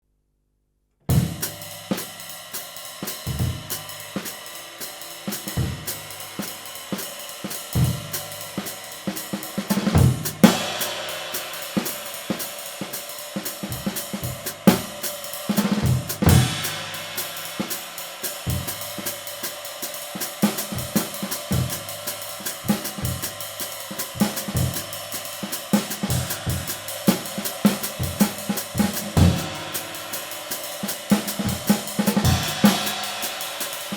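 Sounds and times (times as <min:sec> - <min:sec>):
kick and snare drum: 0:01.1 - 0:02.3, 0:03.0 - 0:04.4, 0:05.2 - 0:33.9
ride cymbal strokes: 0:01.5 - 0:33.9.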